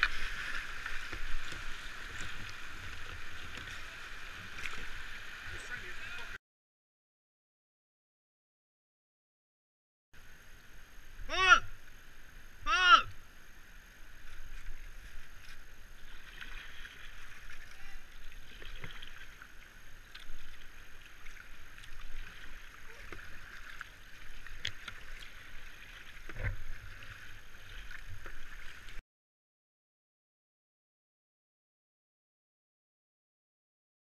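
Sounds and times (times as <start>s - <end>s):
river water splashing and rushing: 0.0s - 6.4s, 10.2s - 29.0s.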